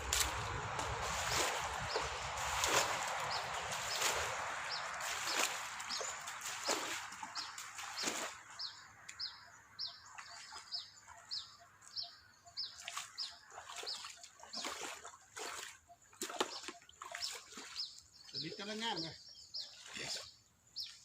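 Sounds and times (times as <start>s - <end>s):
water splashing: 0.0s - 9.2s, 10.0s - 11.3s, 12.7s - 18.2s
bird chirping: 1.1s - 14.8s, 15.9s - 21.0s.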